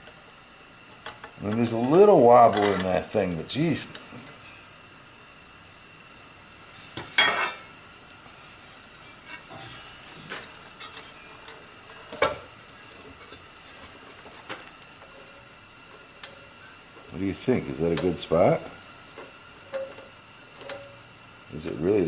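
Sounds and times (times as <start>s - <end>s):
faint steady hiss: 0.0s - 22.0s.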